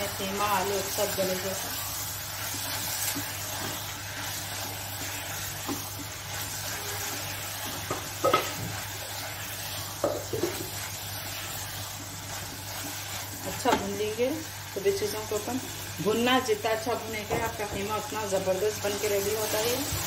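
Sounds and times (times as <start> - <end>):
meat and potatoes sizzling in oil: 0.0 - 20.0
spatula knocking and scraping pot: 5.1 - 8.9, 9.9 - 10.9.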